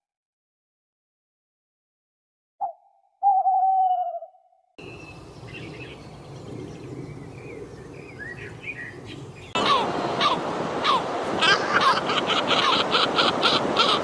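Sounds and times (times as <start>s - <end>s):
birds chirping: 2.6s - 14.0s
outdoor background noise: 4.8s - 14.0s
loud long call: 9.6s - 14.0s.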